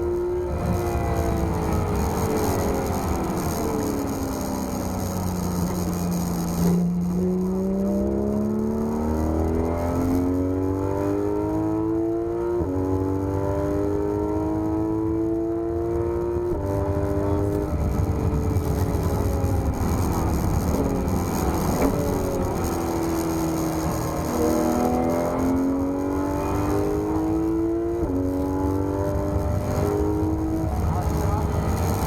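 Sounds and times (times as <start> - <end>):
car engine revving through gears: 0.0 - 32.0.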